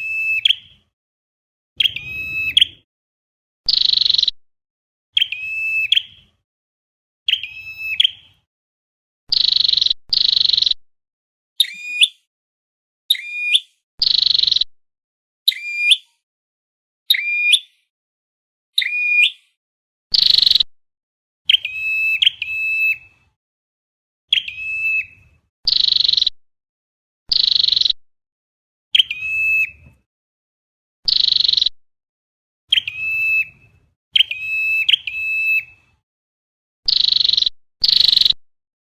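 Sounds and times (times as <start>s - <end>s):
bird calls buzzy and ringing: 1.8s - 2.9s, 32.7s - 33.6s, 34.2s - 35.8s.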